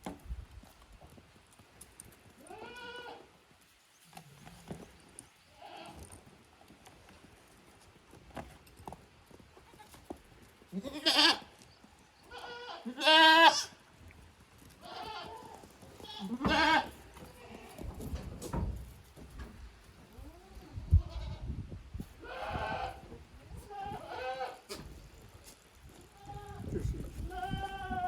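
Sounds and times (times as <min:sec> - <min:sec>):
goats bleating: 0:02.4 - 0:03.3, 0:10.7 - 0:11.5, 0:12.3 - 0:13.8, 0:14.8 - 0:17.8, 0:22.2 - 0:23.0, 0:23.6 - 0:24.8, 0:27.2 - 0:28.0.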